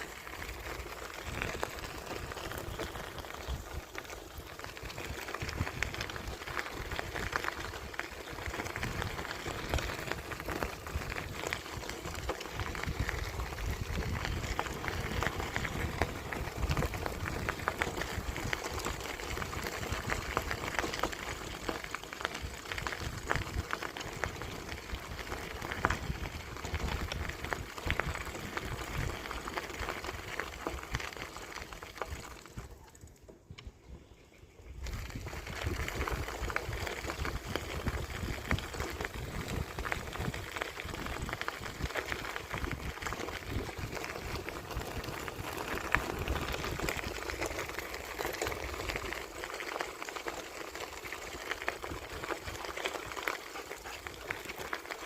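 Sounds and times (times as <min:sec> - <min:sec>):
bicycle rolling along path: 0:00.0 - 0:55.0
wind buffeting microphone: 0:01.2 - 0:21.8, 0:22.4 - 0:31.2, 0:33.5 - 0:48.0.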